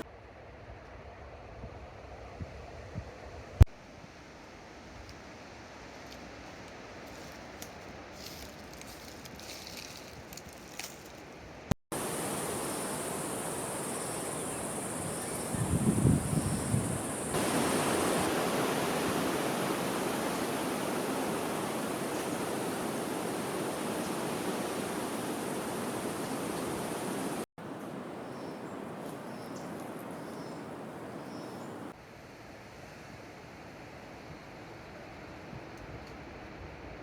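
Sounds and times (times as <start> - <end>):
steady rushing noise: 11.9 - 27.5
thin high hiss: 11.9 - 31.9.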